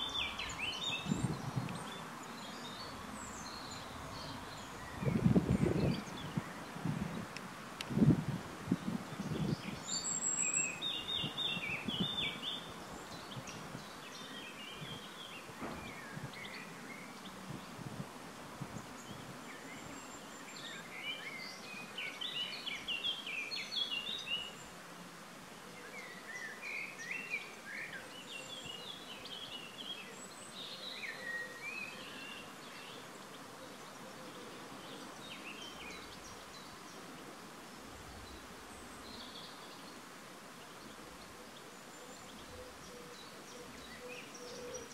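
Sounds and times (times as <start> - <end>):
small birds chirping and trilling: 0.0 - 7.4, 8.7 - 18.0, 18.6 - 25.1, 25.8 - 44.9
steady outdoor hiss: 0.0 - 44.9.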